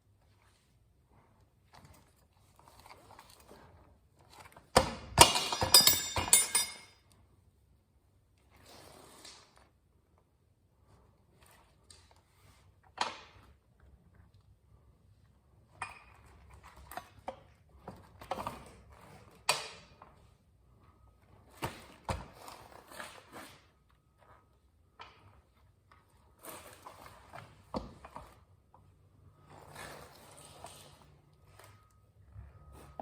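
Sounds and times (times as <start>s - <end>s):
metallic clinks of hand tools: 5.2s - 7.0s.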